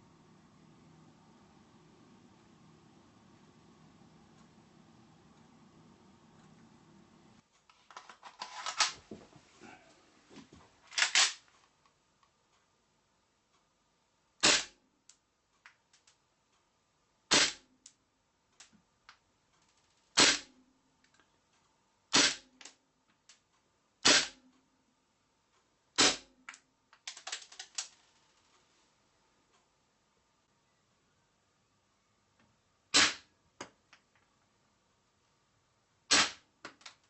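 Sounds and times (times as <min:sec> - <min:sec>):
airsoft pistol shots: 0:14.4 - 0:14.8, 0:17.3 - 0:17.6, 0:20.2 - 0:20.5, 0:22.1 - 0:22.5, 0:24.0 - 0:24.4, 0:26.0 - 0:26.3, 0:32.9 - 0:33.3, 0:36.1 - 0:36.4.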